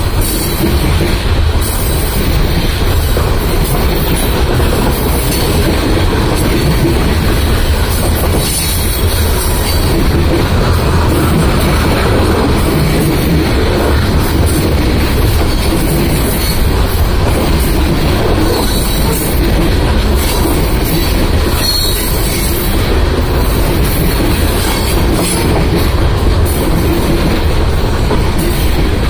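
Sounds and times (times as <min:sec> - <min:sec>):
freight train wheels rumbling: 0:00.0 - 0:29.0.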